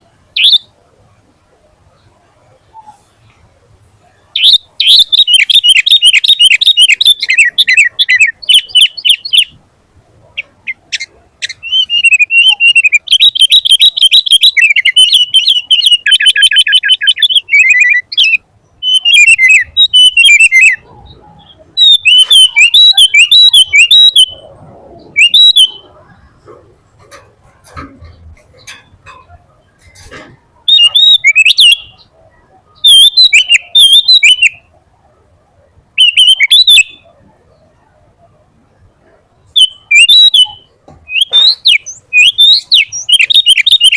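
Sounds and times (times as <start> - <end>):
bird singing whistled notes: 0.4 - 0.7, 4.4 - 9.6, 10.3 - 26.6, 30.6 - 34.8, 36.0 - 37.1, 39.6 - 43.9.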